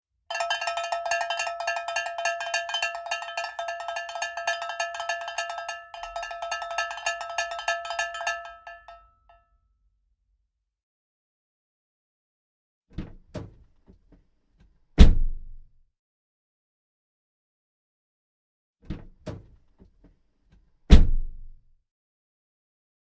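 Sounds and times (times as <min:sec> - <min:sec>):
small metal bell struck rapidly: 0:00.3 - 0:09.0.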